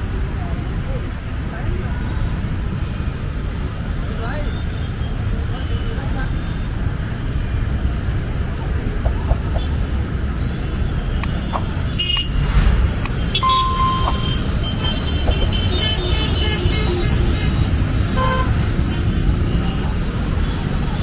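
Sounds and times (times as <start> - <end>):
road traffic rumble: 0.0 - 21.0
short steady tone: 13.4 - 14.4.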